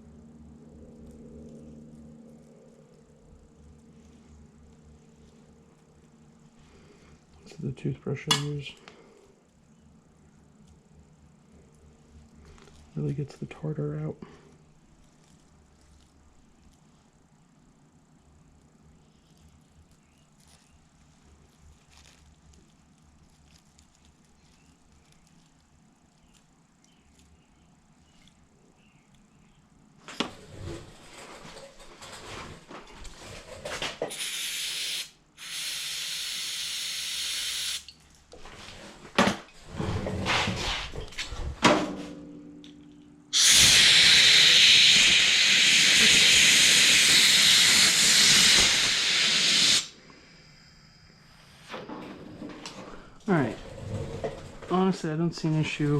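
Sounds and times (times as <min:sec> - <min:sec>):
pressurised spray hissing: 0:34.1 - 0:37.8, 0:43.3 - 0:50.0.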